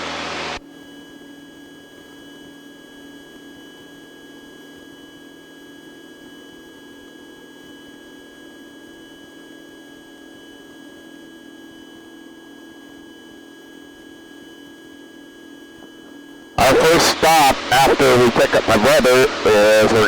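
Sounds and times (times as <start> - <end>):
muffled aircraft engine drone: 16.6 - 20.0
thin high whine: 16.6 - 20.0.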